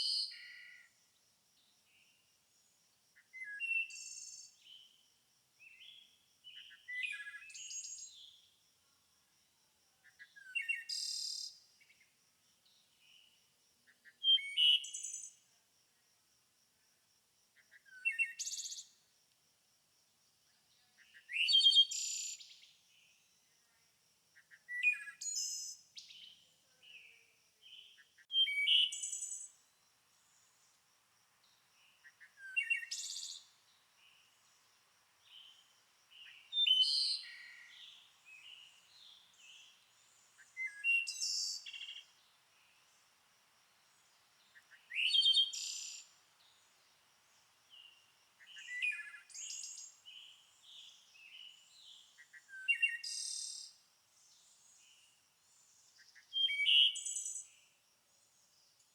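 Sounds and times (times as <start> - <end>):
songbird singing: 0.0 - 15.6, 17.5 - 19.1, 20.4 - 58.9
soft bird chirps: 5.6 - 8.6, 24.4 - 30.8, 31.5 - 43.1, 44.0 - 57.8.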